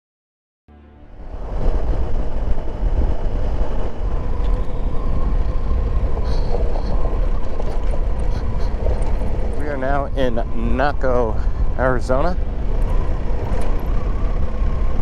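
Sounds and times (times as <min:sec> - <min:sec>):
wind and road rumble: 0:01.1 - 0:15.0
motorcycle engine running: 0:12.4 - 0:15.0.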